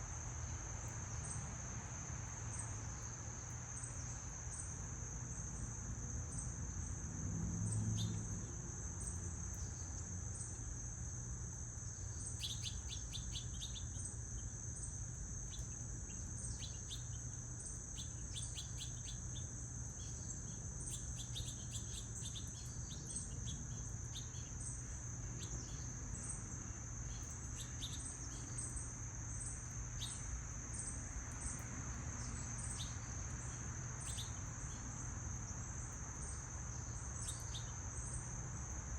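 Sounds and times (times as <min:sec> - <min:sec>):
insects trilling: 0:00.0 - 0:38.9
small birds chirping: 0:12.0 - 0:35.0, 0:35.8 - 0:38.3.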